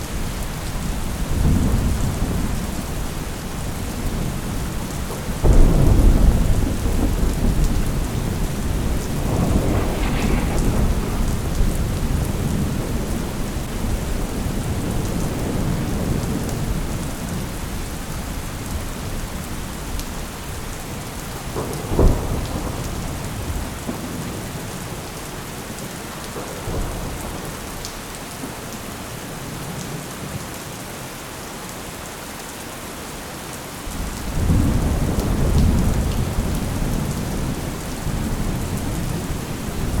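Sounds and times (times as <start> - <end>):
steady rain: 0.0 - 40.0
rolling thunder: 0.8 - 17.8, 21.4 - 25.0, 34.0 - 40.0
sharp crack of thunder: 5.2 - 17.0, 21.4 - 25.0, 34.0 - 40.0.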